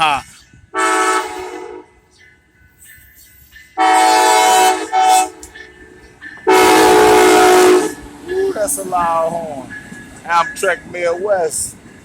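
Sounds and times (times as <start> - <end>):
locomotive horn blasts: 0.8 - 2.0, 3.8 - 5.5, 6.5 - 8.0.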